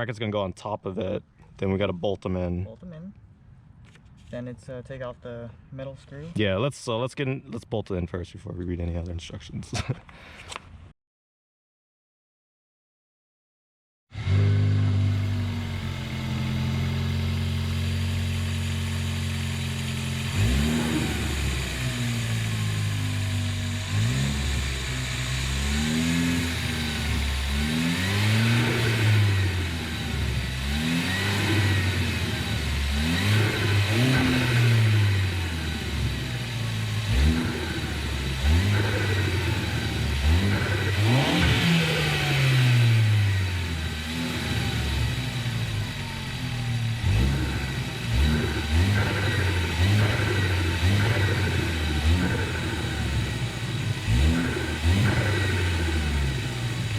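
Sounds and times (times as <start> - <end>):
car engine revving: 14.1 - 56.9.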